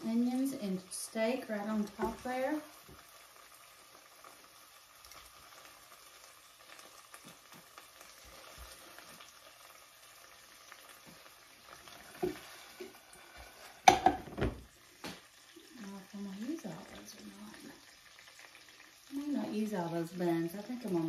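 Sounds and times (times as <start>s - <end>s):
meat and onions sizzling in skillet: 0.0s - 21.0s
pan knocks: 13.9s - 14.6s.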